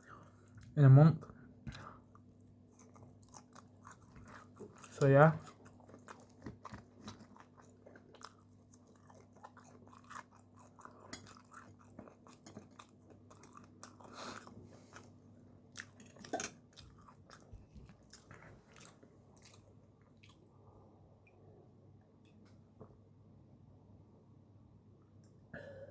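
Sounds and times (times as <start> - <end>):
person chewing: 1.7 - 20.5.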